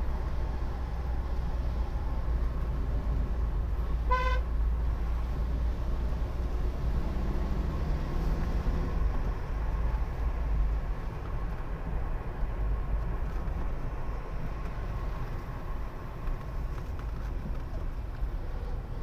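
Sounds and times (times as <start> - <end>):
car driving rumble: 0.0 - 19.0
car horn toot: 4.0 - 4.5.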